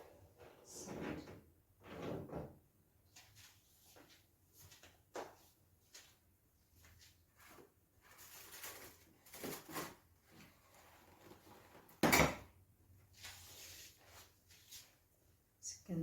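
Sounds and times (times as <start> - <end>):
scraping and rubbing on cooker: 0.4 - 2.2.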